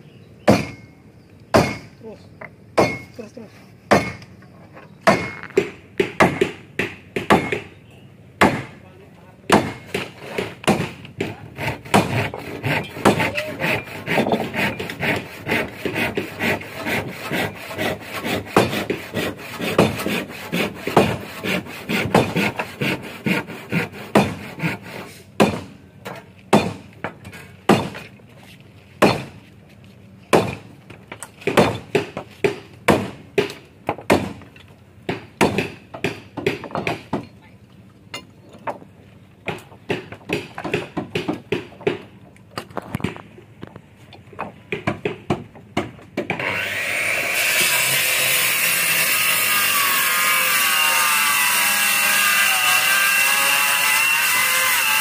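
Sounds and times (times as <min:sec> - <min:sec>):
sharp knocks on timber: 0:03.9 - 0:04.2, 0:05.0 - 0:07.7, 0:09.5 - 0:12.2, 0:35.1 - 0:37.3, 0:39.4 - 0:42.1
sawing or scraping wood: 0:09.8 - 0:25.3, 0:46.4 - 0:55.0.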